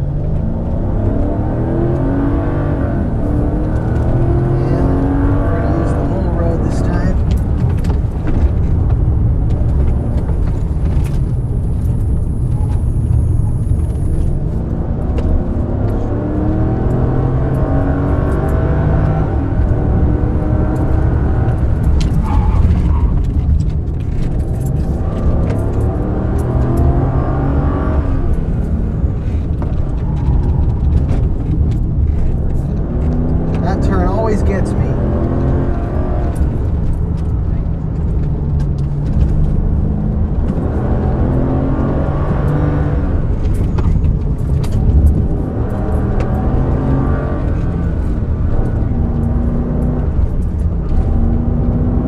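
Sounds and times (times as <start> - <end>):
car engine revving hard: 0.0 - 7.5, 14.7 - 23.4, 24.4 - 31.3, 32.7 - 37.3, 38.1 - 52.0.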